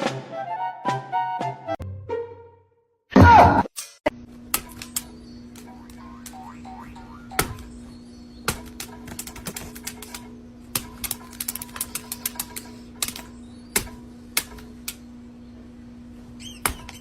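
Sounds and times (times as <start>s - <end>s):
steady hum: 4.1s - 17.0s.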